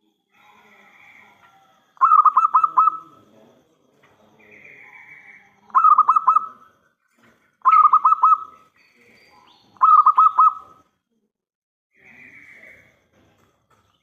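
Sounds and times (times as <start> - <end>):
dove cooing: 0.4 - 3.3, 4.4 - 6.8, 7.6 - 8.7, 9.8 - 10.8.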